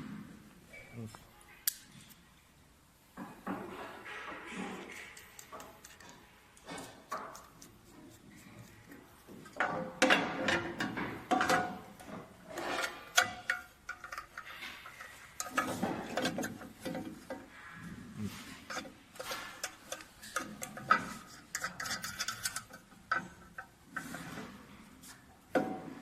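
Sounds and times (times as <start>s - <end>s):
metal parts clicking and knocking: 4.5s - 8.2s, 8.8s - 17.5s, 18.7s - 24.5s.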